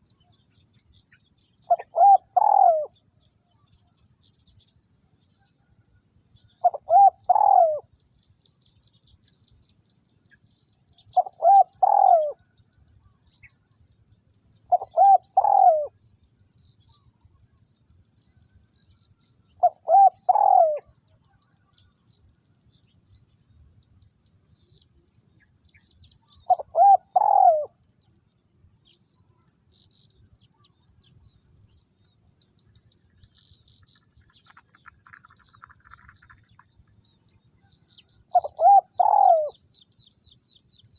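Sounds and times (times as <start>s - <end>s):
dove cooing: 1.7s - 3.0s, 6.6s - 7.9s, 11.1s - 12.5s, 14.7s - 16.0s, 19.6s - 21.0s, 26.3s - 27.8s, 38.3s - 39.6s.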